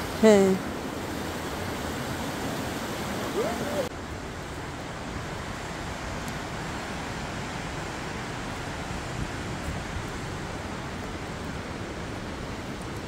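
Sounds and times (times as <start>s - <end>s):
waterfall rushing: 0.0s - 4.0s.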